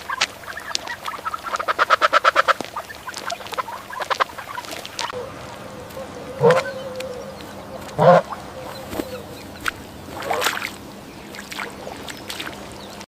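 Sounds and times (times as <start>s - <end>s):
duck quacking: 0.0s - 5.3s, 6.0s - 6.8s, 7.8s - 10.6s.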